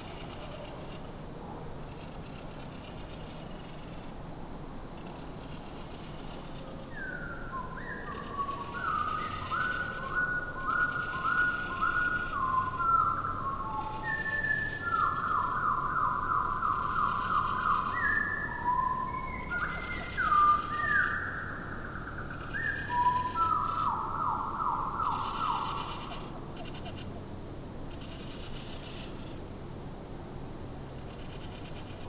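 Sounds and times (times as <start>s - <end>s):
slowed-down birdsong whistles: 5.1s - 27.0s.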